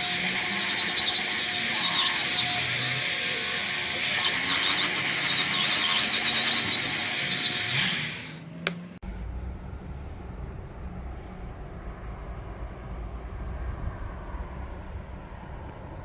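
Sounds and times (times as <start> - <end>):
electric carving tool whining: 0.0 - 8.8
low rumble: 9.0 - 16.0.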